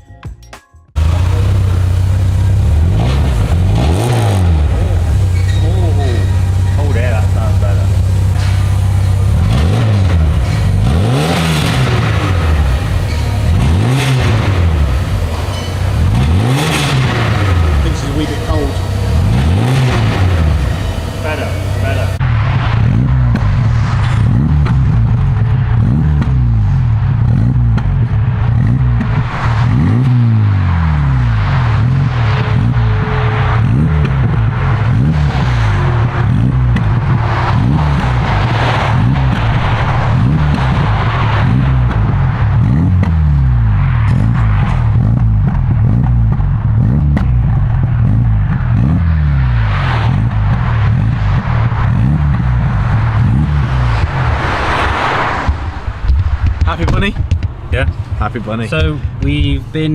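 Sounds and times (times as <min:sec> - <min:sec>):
car engine exhaust revving: 0:01.0 - 0:59.9.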